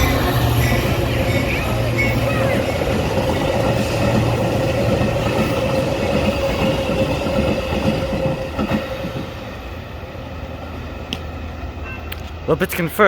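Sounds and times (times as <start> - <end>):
train wheels clicking over rail joints: 0.0 - 9.9
train rumble: 0.0 - 13.0.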